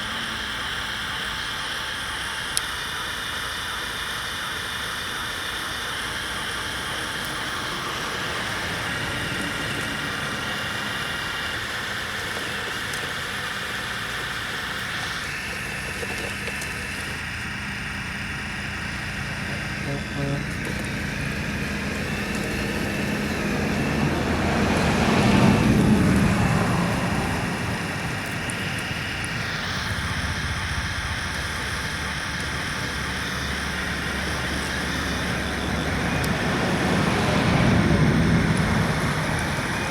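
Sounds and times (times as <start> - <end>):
electric motors whining: 0.0 - 39.9
road vehicle passing: 6.6 - 13.2, 18.9 - 39.9.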